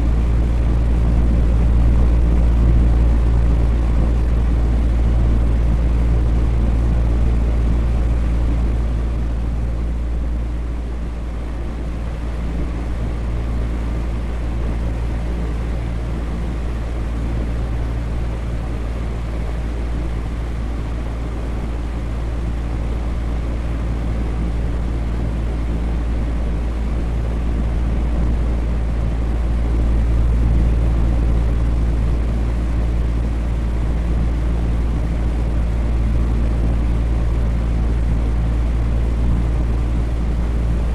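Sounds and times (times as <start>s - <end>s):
electric fan whooshing: 0.0s - 40.9s
low motor hum: 0.0s - 40.9s.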